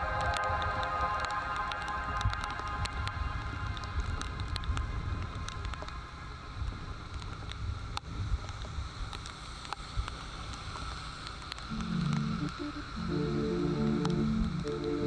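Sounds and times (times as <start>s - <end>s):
raindrops ticking on camera: 0.0s - 15.0s.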